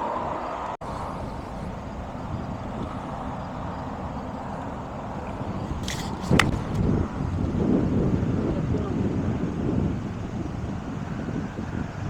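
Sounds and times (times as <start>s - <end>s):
wind rumble on microphone: 0.0s - 12.0s
golf club swish: 0.8s - 6.9s
golf club striking ball: 0.8s - 7.0s.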